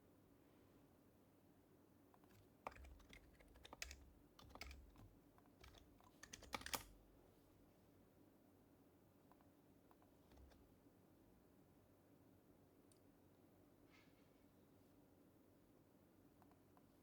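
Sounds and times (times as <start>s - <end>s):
soft keyboard typing: 2.2s - 7.1s, 9.3s - 10.7s.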